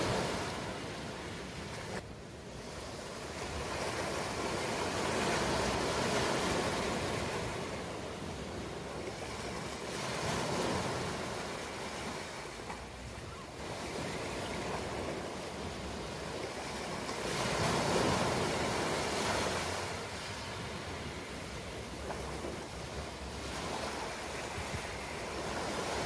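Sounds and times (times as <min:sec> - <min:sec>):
ocean waves washing: 0:00.0 - 0:26.0.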